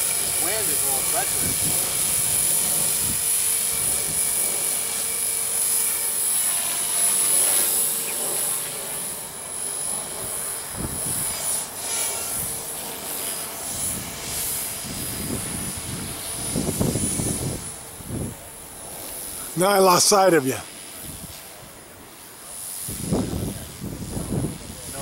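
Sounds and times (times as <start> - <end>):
wind buffeting microphone: 0.0 - 4.7, 10.1 - 12.8, 13.6 - 19.5, 21.0 - 21.8, 22.8 - 25.0
toy helicopter motor whine: 0.0 - 25.0.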